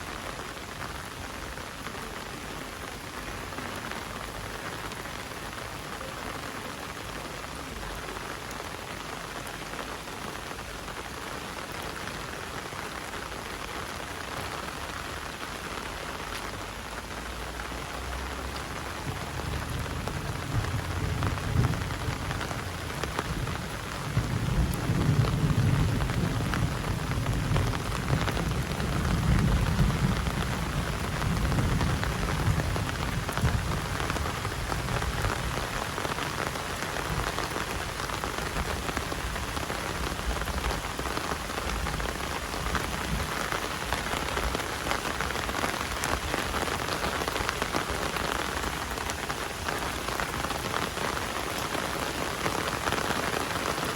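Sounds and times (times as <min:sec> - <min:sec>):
heavy rain: 0:00.0 - 0:53.9
thunder rumbling: 0:18.1 - 0:53.9.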